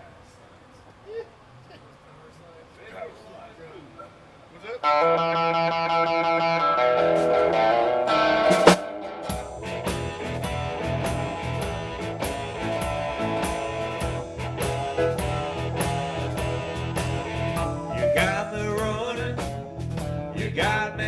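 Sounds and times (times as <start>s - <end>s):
electric guitar notes: 4.8s - 21.0s
drums and bass beat: 7.1s - 21.0s.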